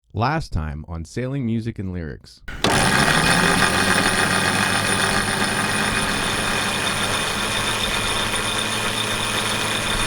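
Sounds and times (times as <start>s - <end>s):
steady engine hum: 2.5s - 10.0s.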